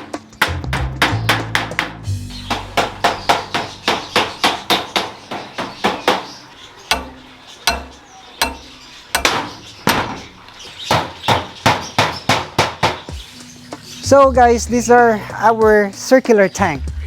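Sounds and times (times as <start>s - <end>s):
hammer blows: 2.5s - 12.5s.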